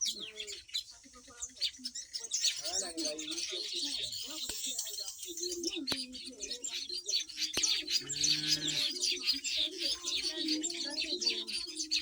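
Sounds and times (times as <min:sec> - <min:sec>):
birds chattering and chirping: 0:00.0 - 0:12.0
low steady bird call: 0:00.0 - 0:12.0.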